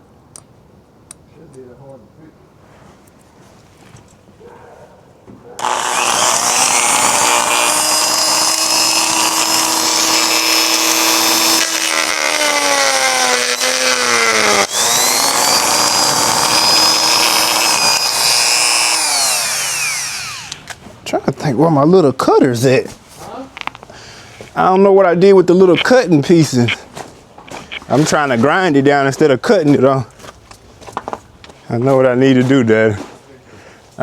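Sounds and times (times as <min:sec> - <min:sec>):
rotary tool grinding: 0:05.6 - 0:20.8.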